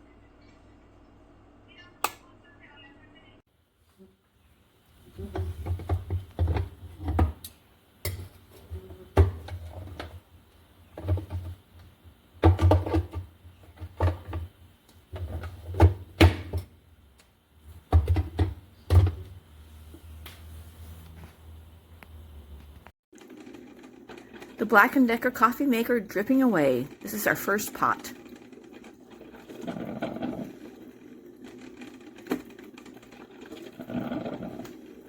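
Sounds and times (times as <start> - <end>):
coffee maker low hum: 3.8 - 35.0
coffee maker gurgling: 4.9 - 16.7, 23.3 - 35.0.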